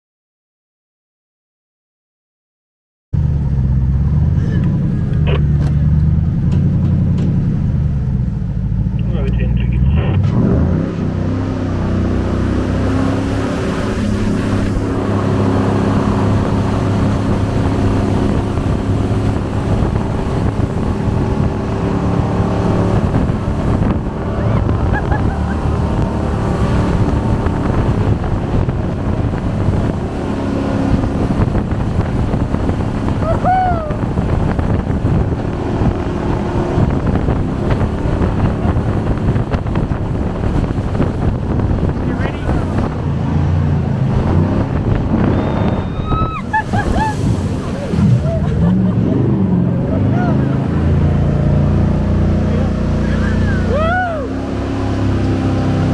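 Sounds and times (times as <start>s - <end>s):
boat engine running: 3.2s - 55.9s
water rushing past: 9.1s - 55.9s
wind buffeting microphone: 11.1s - 55.9s
high rising and falling squeal: 45.0s - 48.4s.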